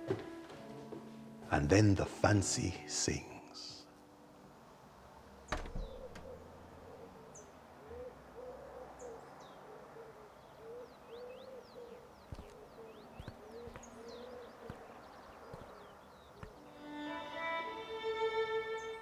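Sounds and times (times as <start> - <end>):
small birds chirping: 5.4 - 19.0
pigeon cooing: 5.8 - 16.5.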